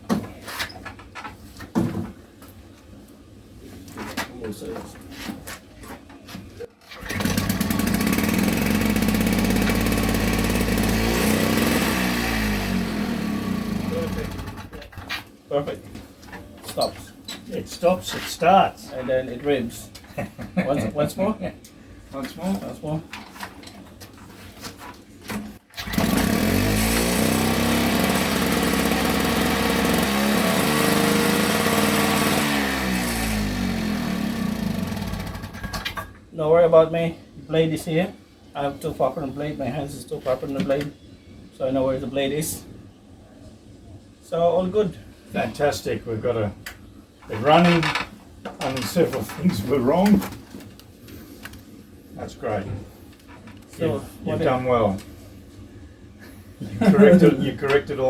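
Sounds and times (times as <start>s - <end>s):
two-stroke engine running: 7.0s - 14.8s, 25.8s - 35.6s.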